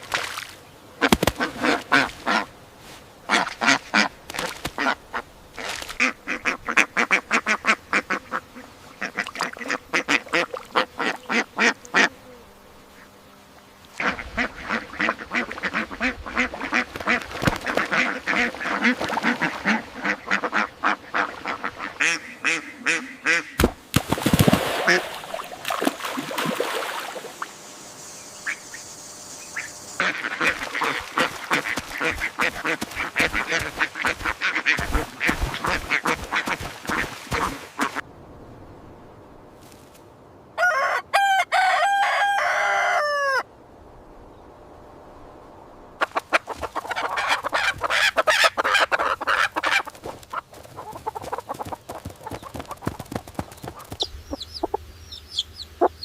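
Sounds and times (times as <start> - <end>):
ducks quacking: 1.0 - 2.5, 3.3 - 12.1, 14.0 - 23.7, 24.7 - 26.2, 28.4 - 38.0, 46.0 - 54.8.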